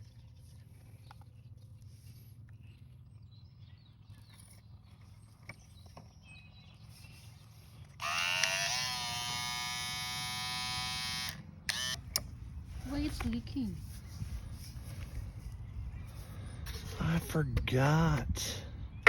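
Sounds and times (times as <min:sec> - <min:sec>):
electric fuel pump whirring: 0:07.7 - 0:13.4.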